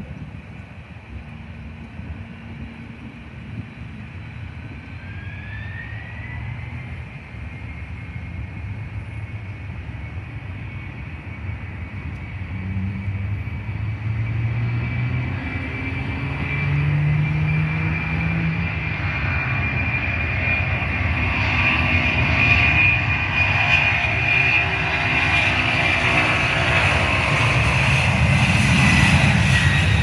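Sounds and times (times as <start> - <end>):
jet engine whine: 0.0 - 30.0
low engine rumble: 0.0 - 30.0.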